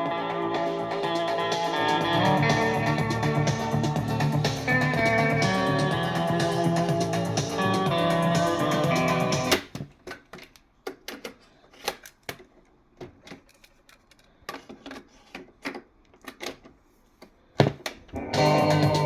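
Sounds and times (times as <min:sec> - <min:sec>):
music from boombox: 0:00.0 - 0:09.7, 0:18.1 - 0:19.0.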